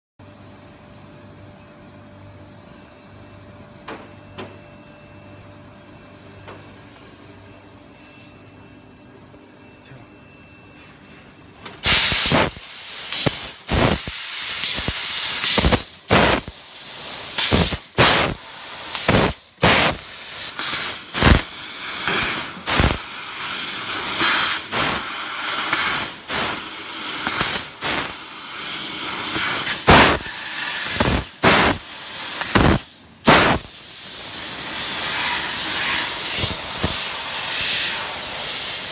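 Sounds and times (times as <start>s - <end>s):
laser cutter gas hissing: 11.8s - 38.9s.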